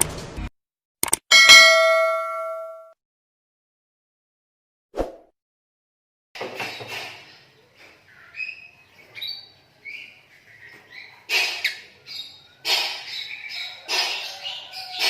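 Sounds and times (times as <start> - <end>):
lovebirds chirping: 6.7 - 15.0.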